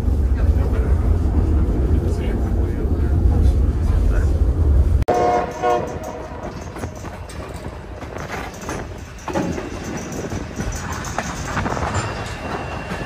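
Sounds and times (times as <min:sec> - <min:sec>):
train wheels rumbling on rails: 0:00.0 - 0:13.0
clicks and clatter: 0:05.8 - 0:13.0.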